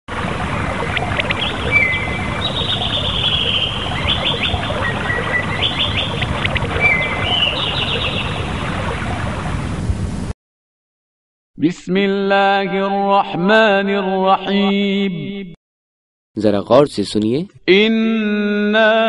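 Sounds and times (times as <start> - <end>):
birds chirping and trilling: 0.5 - 9.5.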